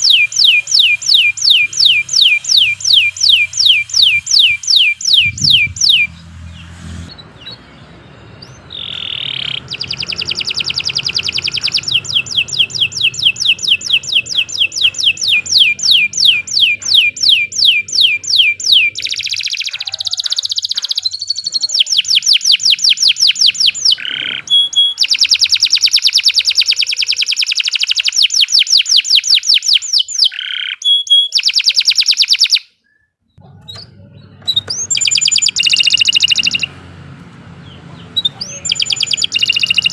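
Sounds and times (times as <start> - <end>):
canary singing trills: 0.0 - 39.9
low hum: 1.6 - 16.4.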